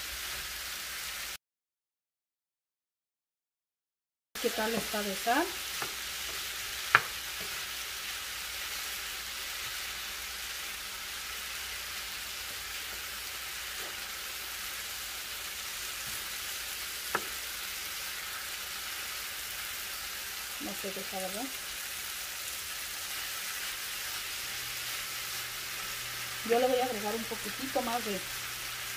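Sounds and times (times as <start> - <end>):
food sizzling in a skillet: 0.0 - 1.4, 4.4 - 28.9
spatula stirring food: 4.5 - 20.5
spatula knocking on pan: 5.8 - 7.6, 17.1 - 17.4.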